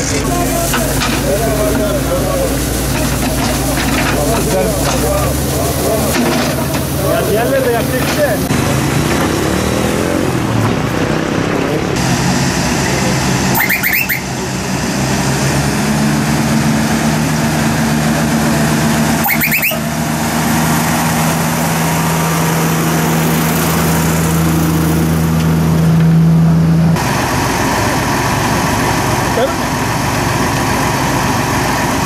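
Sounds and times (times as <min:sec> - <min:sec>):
constant hiss: 0:00.0 - 0:08.5
vehicle engine running: 0:00.0 - 0:32.0.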